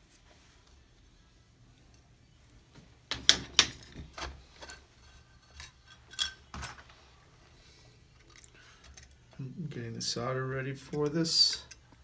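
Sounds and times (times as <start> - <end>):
small metal tools clinking: 4.6 - 6.8.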